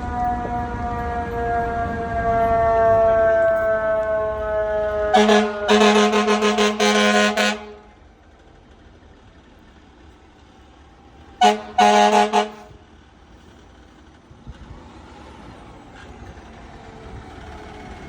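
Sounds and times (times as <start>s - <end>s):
fire truck air horn: 0.0s - 8.0s, 11.4s - 12.8s
vehicle engine rumble: 0.0s - 18.0s.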